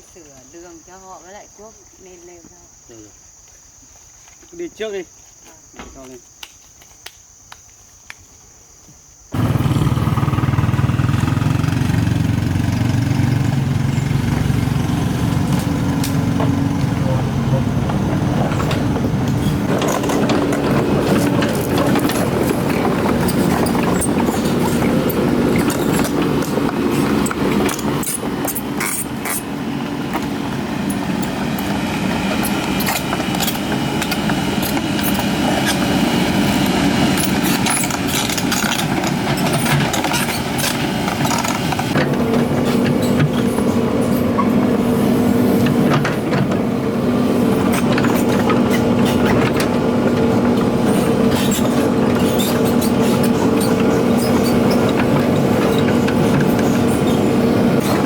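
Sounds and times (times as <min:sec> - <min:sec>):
diesel engine running: 0:09.3 - 0:58.0
metallic clanks and squeaks from tracks: 0:12.6 - 0:58.0.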